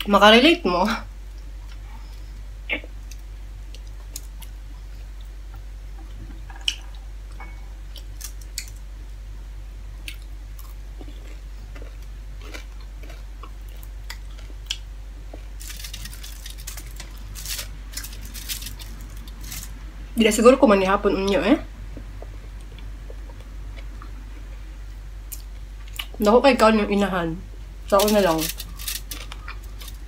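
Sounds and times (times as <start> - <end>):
steady low hum: 0.0 - 30.0
person chewing with wet mouth sounds: 1.3 - 8.7, 10.0 - 19.6, 21.9 - 26.2, 28.3 - 30.0
small clicks and crackle: 15.6 - 19.7.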